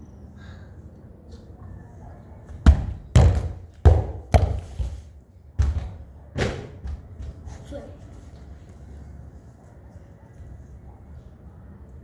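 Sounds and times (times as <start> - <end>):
football thudding: 2.5 - 7.3.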